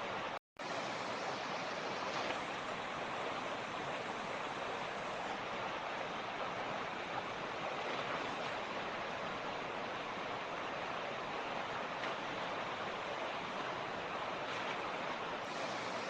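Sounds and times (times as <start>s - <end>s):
creek water rushing over stones: 0.0s - 16.0s.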